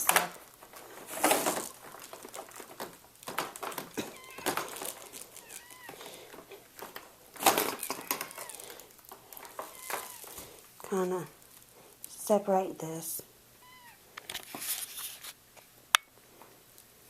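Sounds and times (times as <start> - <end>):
high rising and falling calls: 13.6 - 14.0
dirt being scraped into pile: 14.4 - 15.4.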